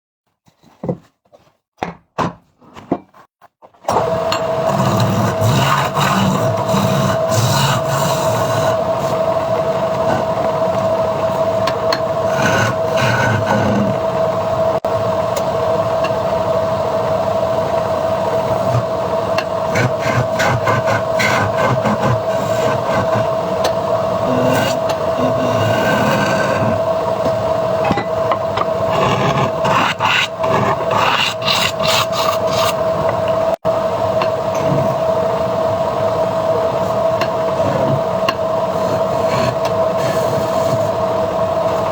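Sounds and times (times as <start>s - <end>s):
wood lathe whine: 3.9s - 41.9s
turning tool scraping wood: 4.0s - 9.3s, 9.9s - 14.1s, 18.4s - 27.4s, 28.6s - 33.3s, 38.7s - 41.0s.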